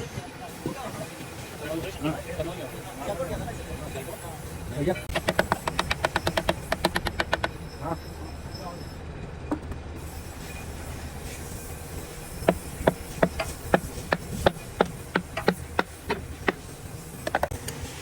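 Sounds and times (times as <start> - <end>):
cluster of clicks: 5.1 - 7.6
sharp knocks: 5.1 - 7.6, 12.4 - 17.5.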